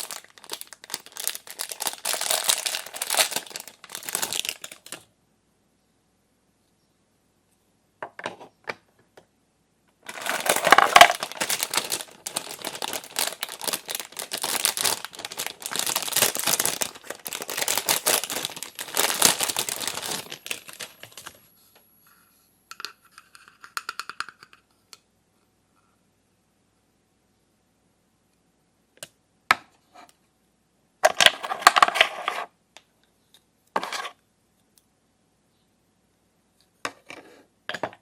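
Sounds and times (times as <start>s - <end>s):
plastic packaging crinkling: 0.0s - 5.0s, 10.0s - 21.4s.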